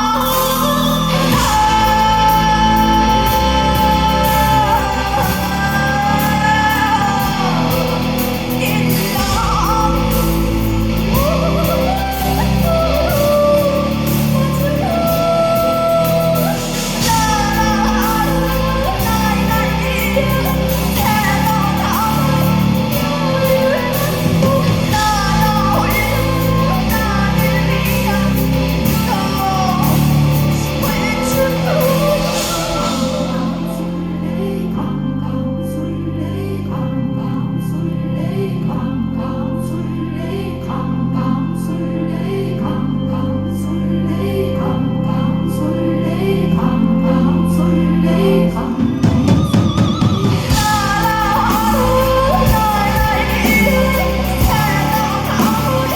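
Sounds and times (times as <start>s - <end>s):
live band music: 0.0s - 34.8s, 48.2s - 55.9s
woman singing: 0.0s - 55.9s.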